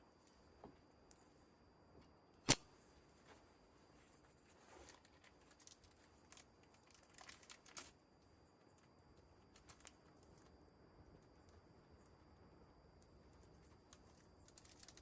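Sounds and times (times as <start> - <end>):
faint clicks and crackles: 4.6 - 8.0, 8.6 - 12.3, 12.9 - 15.0.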